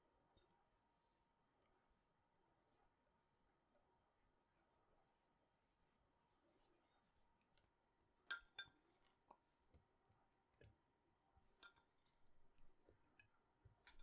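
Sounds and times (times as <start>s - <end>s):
cutlery clinking: 8.3s - 8.9s, 11.6s - 12.7s, 13.8s - 14.0s.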